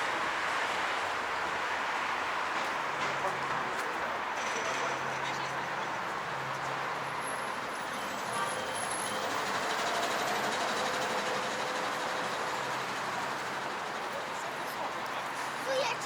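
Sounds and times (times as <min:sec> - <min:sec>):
passing vehicles: 0:00.0 - 0:16.0.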